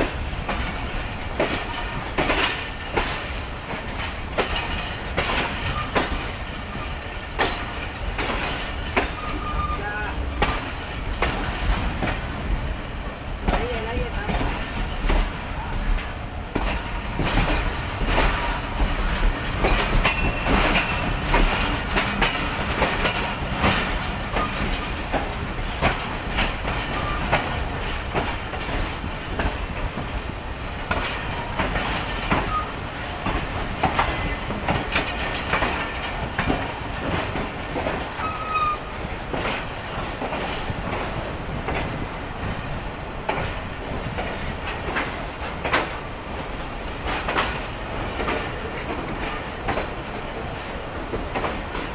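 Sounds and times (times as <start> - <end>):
train wheels clacking over rail joints: 0.0 - 51.9
faint wheel or brake squeals: 9.2 - 10.0, 32.5 - 32.8, 38.2 - 38.9.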